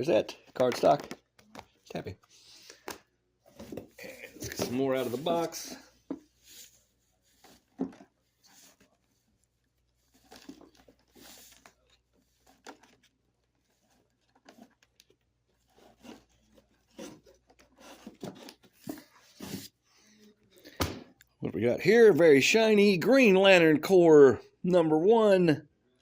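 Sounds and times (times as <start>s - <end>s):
paper and packing rustling: 0.3s - 19.8s.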